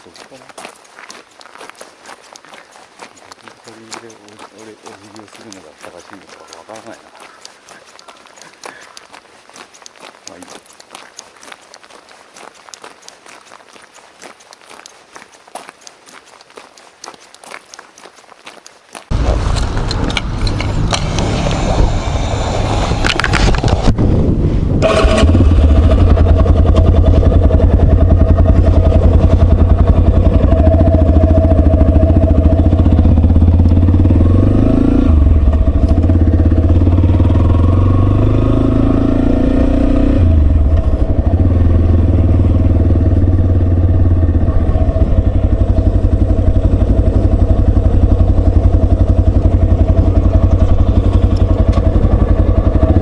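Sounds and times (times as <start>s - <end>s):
motorcycle engine running: 3.2s - 9.2s, 19.1s - 53.0s.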